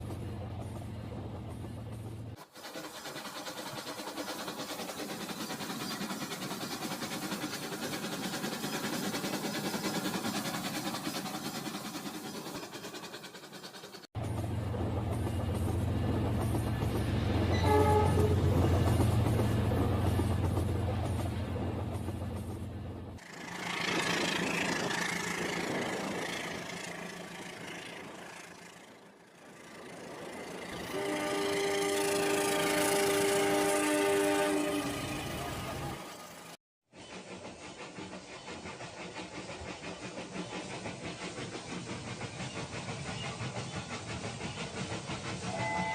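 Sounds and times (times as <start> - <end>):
toy train clicking on track: 2.4 - 14.0.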